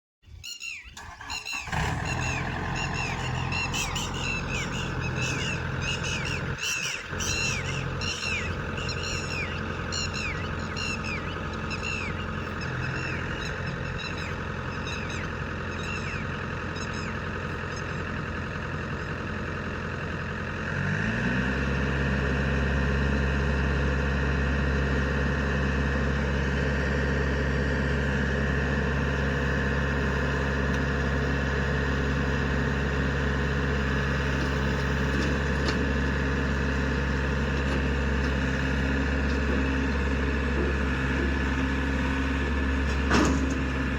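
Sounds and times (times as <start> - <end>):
high falling chirp: 0.5 - 17.2
diesel engine running: 0.9 - 43.9.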